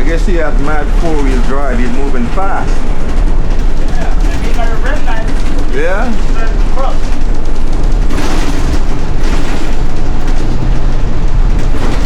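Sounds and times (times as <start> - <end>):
bus engine rumbling: 0.0 - 12.0.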